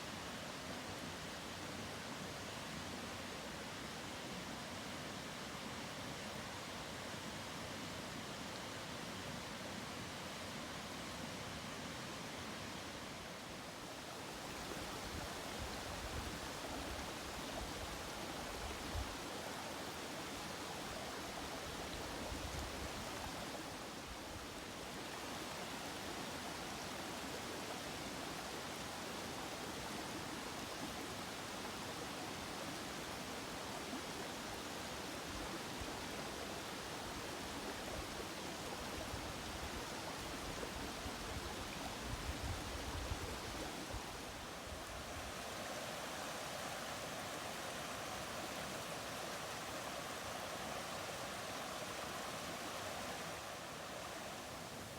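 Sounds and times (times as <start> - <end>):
stream rushing over rocks: 0.0 - 54.9.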